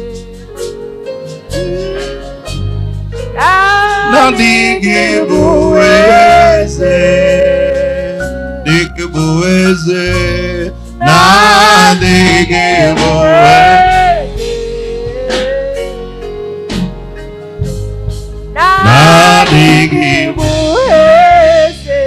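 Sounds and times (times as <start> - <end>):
keyboard and band accompaniment: 0.0 - 22.0
voices singing gospel chorus: 3.4 - 16.1, 18.6 - 22.0.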